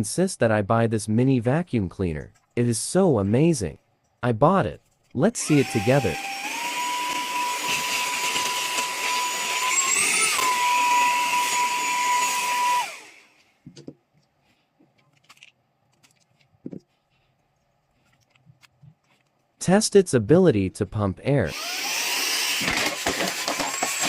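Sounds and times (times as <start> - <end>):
handheld vacuum cleaner whining: 5.4 - 13.4, 21.5 - 24.0.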